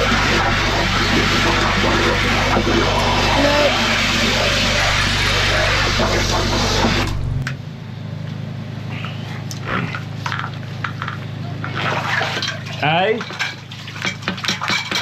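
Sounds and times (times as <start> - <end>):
high-pressure water spray: 0.0 - 7.0
drain jetter engine: 0.0 - 7.6, 8.9 - 15.0.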